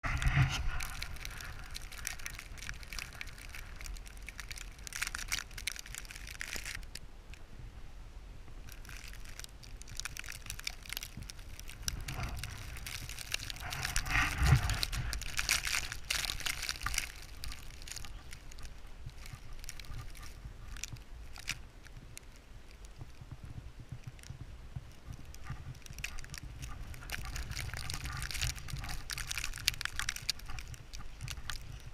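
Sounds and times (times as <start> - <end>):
footsteps crunching through snow: 0.0 - 6.8, 8.8 - 22.1
wind rumble on microphone: 0.0 - 31.9.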